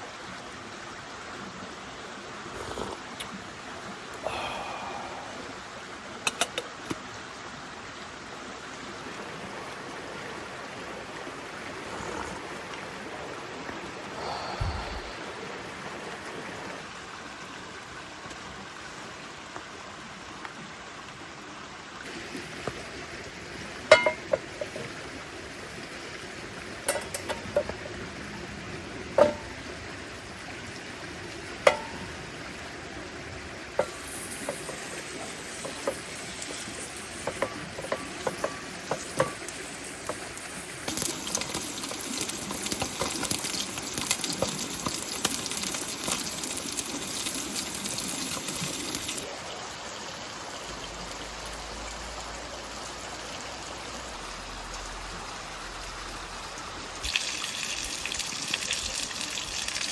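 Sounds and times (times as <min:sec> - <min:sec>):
steady hiss: 0:01.8 - 0:07.1, 0:09.0 - 0:16.9, 0:22.0 - 0:56.2
metal cookware clinking: 0:23.9 - 0:24.8, 0:26.9 - 0:27.8, 0:29.2 - 0:29.6, 0:31.6 - 0:32.1, 0:37.1 - 0:40.2.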